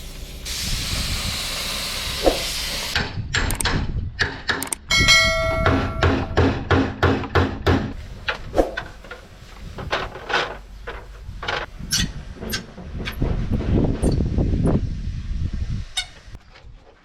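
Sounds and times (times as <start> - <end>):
hammer striking metal: 4.2 - 7.9.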